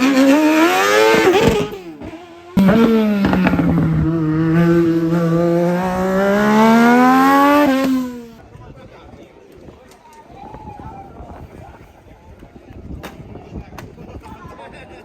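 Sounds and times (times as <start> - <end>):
race car engine revving: 0.0 - 8.4.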